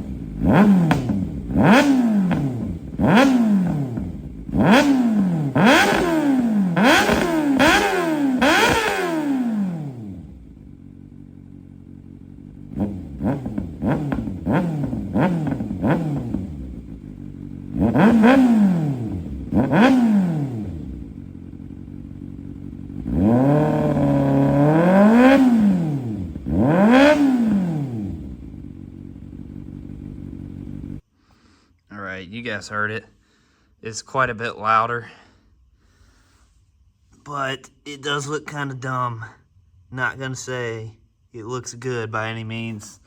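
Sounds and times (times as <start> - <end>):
motorcycle engine idling and revving: 0.0 - 31.1.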